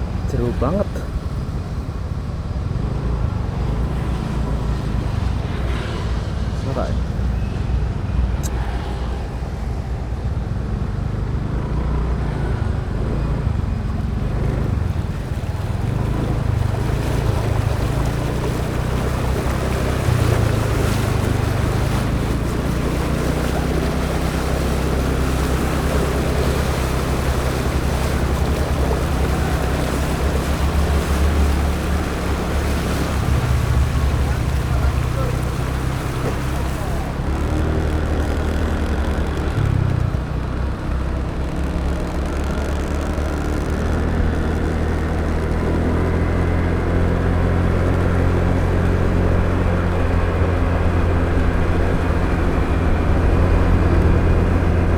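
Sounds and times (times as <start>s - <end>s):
motorbike engine running: 11.4s - 54.9s.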